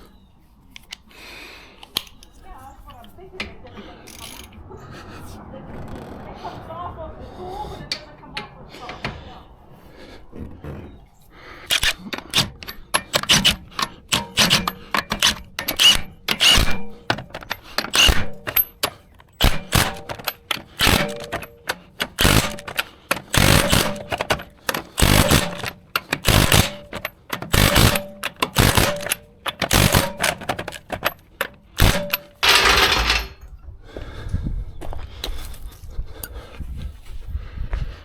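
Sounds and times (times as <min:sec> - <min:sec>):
metallic clicks of hand tools: 0:11.7 - 0:33.4.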